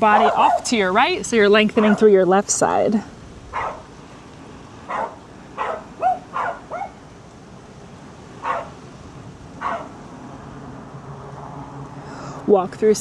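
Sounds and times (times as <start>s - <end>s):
dog barking: 0.1s - 0.7s, 1.8s - 2.1s, 3.5s - 3.9s, 4.9s - 7.0s, 8.4s - 8.8s, 9.6s - 10.0s.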